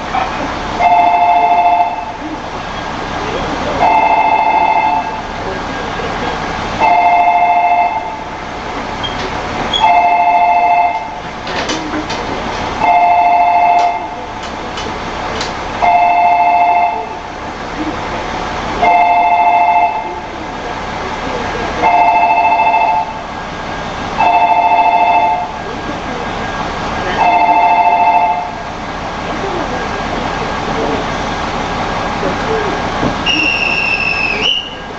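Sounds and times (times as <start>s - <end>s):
station noise: 0.0s - 34.9s
two-tone electronic signal: 0.8s - 2.2s, 3.7s - 5.2s, 6.8s - 8.3s, 9.0s - 11.2s, 12.8s - 14.2s, 15.8s - 17.2s, 18.8s - 20.3s, 21.8s - 23.2s, 24.2s - 25.6s, 27.1s - 28.6s, 33.2s - 34.9s.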